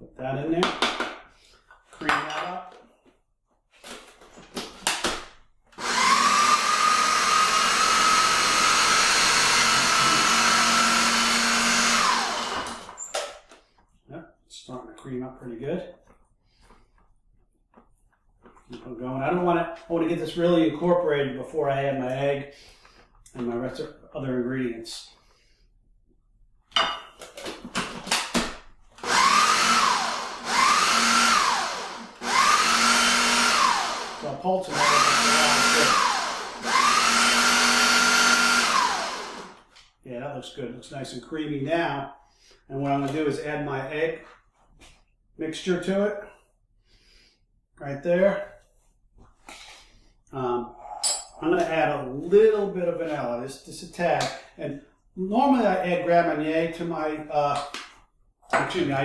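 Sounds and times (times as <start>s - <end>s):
blender motor running: 5.8s - 13.0s, 29.0s - 39.7s.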